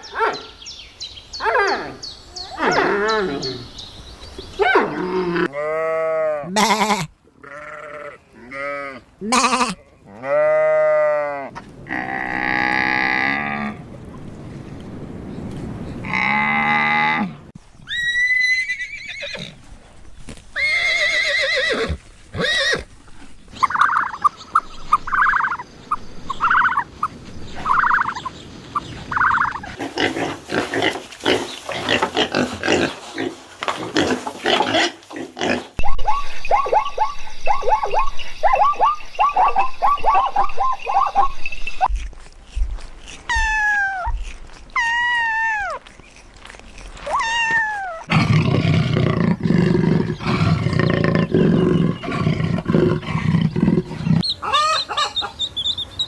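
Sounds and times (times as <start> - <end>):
livestock calling: 4.6 - 13.9, 23.6 - 28.3, 50.0 - 56.0.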